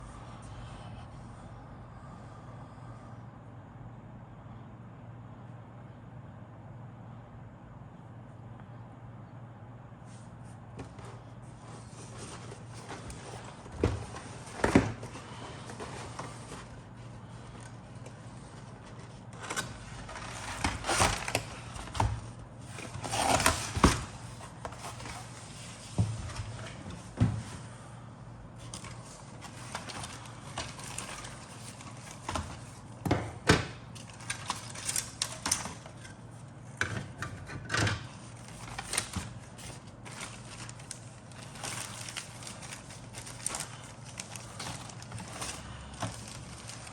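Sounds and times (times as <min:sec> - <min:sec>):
steady low hum: 0:00.0 - 0:46.9
plastic parts rustling and clattering: 0:11.9 - 0:26.8, 0:28.6 - 0:32.9, 0:33.9 - 0:36.2, 0:36.8 - 0:46.9.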